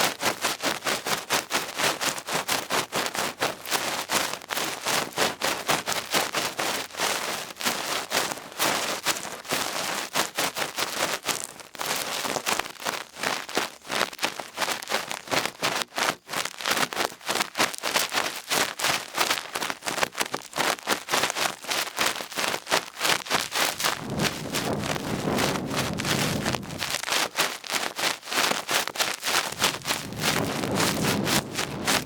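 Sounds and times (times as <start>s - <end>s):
low rumbling: 23.8s - 27.0s, 29.6s - 32.0s
ear swab scratching in ear: 29.3s - 32.0s.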